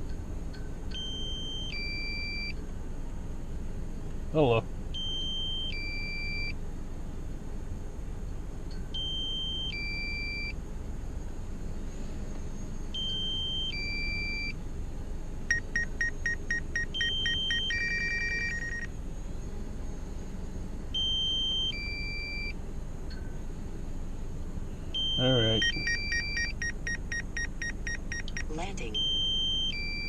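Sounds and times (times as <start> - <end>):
electronic alert beeps: 15.5 - 18.9, 25.0 - 30.0.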